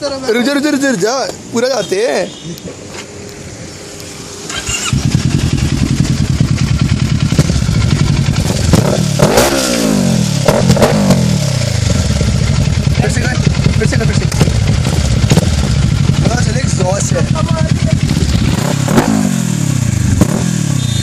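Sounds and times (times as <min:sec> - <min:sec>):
motorcycle engine idling and revving: 0:02.7 - 0:21.0
motorcycle starter cranking: 0:04.5 - 0:06.0.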